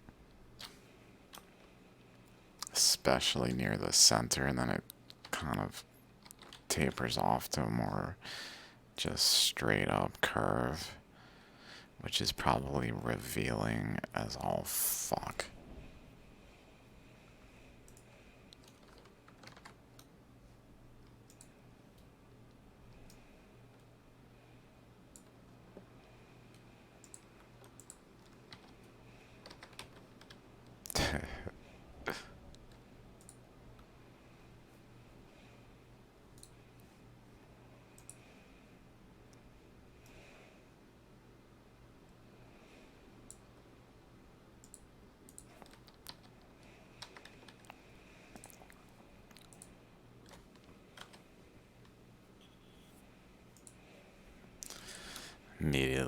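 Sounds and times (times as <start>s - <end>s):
steady low hum: 0.0s - 56.0s
keyboard and mouse clicks: 6.2s - 6.7s, 26.5s - 28.9s, 44.6s - 51.2s, 53.6s - 53.8s.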